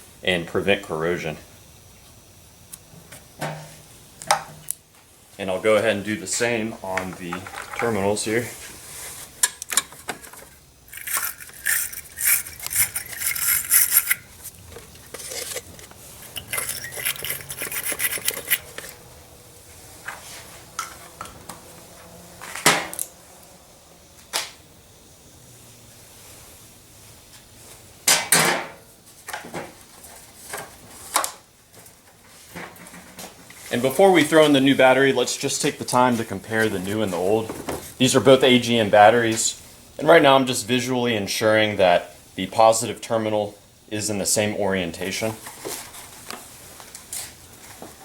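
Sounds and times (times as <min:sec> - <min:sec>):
metal clicks and clinks: 0:10.9 - 0:14.3, 0:15.3 - 0:19.0
metal scraping: 0:10.9 - 0:19.0.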